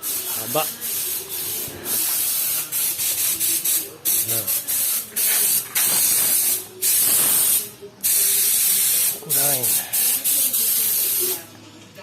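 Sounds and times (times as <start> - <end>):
high-pitched hissing bursts: 0.0 - 11.4.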